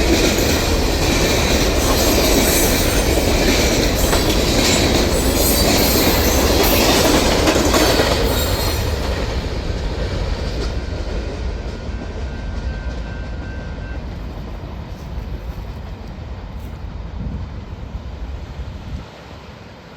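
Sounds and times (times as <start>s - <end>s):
wheels clicking over rail joints: 0.0s - 12.2s
railcars rolling on track: 0.0s - 19.9s.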